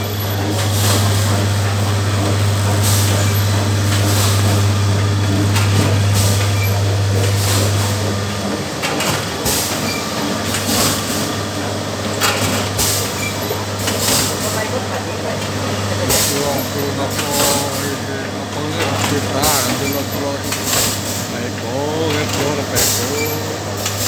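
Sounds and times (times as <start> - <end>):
machine humming: 0.0 - 24.0
machine hissing clacking strokes: 15.6 - 24.0.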